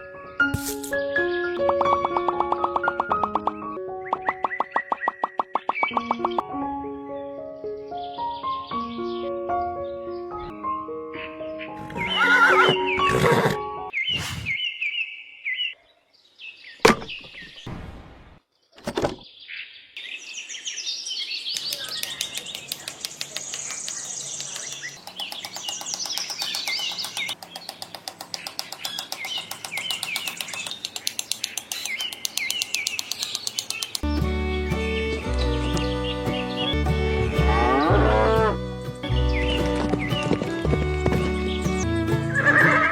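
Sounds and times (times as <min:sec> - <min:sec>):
birds chirping: 0:00.0 - 0:06.5, 0:07.1 - 0:42.9
background music: 0:00.0 - 0:13.9, 0:34.0 - 0:42.9
sharp knocks: 0:16.8 - 0:17.5.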